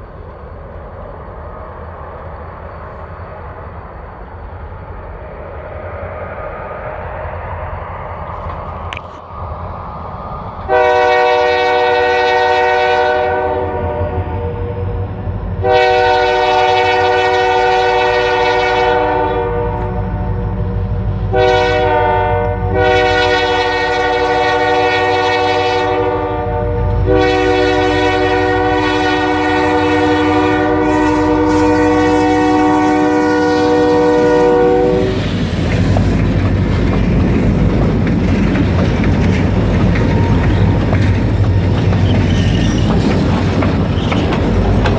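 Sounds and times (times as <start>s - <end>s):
locomotive air horn blasts: 10.7s - 14.9s, 15.6s - 20.6s, 21.3s - 35.2s
wheels clacking over rail joints: 35.0s - 44.9s.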